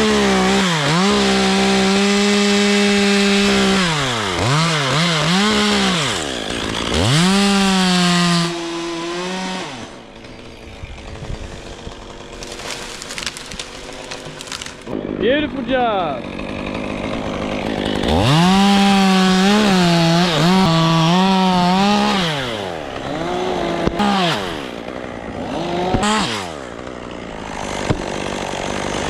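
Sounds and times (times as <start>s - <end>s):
chainsaw revving: 0.0s - 29.0s
rustling: 12.4s - 14.9s.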